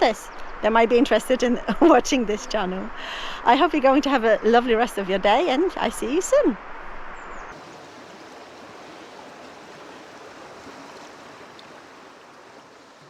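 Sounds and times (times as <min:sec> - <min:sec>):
river water flowing: 0:07.5 - 0:13.0.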